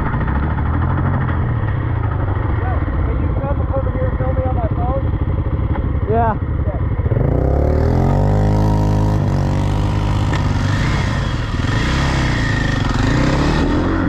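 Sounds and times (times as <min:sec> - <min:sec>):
off-road vehicle engine revving: 0:07.0 - 0:14.0.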